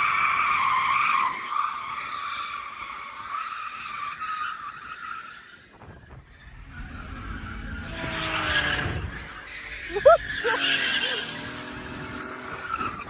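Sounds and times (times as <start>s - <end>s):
car tyres squealing: 0.0s - 13.0s
car engine low rumble: 6.0s - 13.0s.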